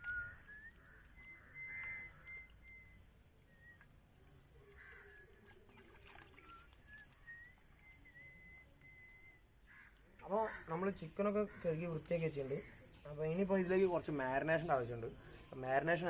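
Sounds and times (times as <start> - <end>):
faint birdsong: 0.0 - 16.0
water splashing: 3.7 - 16.0.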